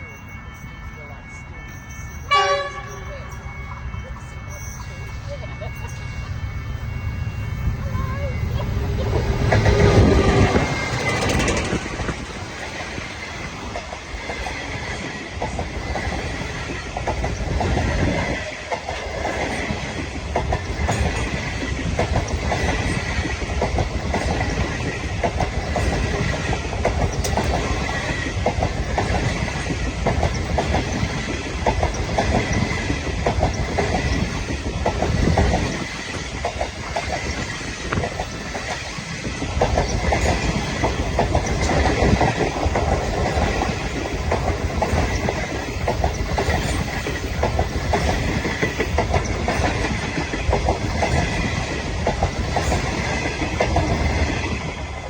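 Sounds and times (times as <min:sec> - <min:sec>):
low train rumble: 0:00.0 - 0:55.0
train wheels clicking over rail joints: 0:08.2 - 0:55.0.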